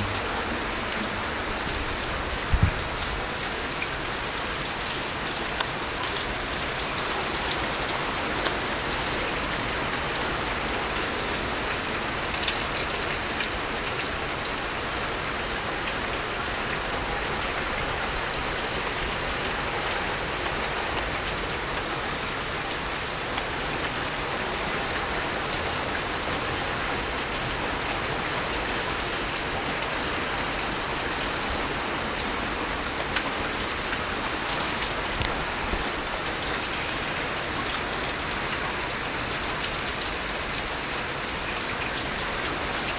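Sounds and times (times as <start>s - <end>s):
sharp drips and ticks: 0.0s - 21.9s
heavy rain splattering: 0.0s - 42.9s.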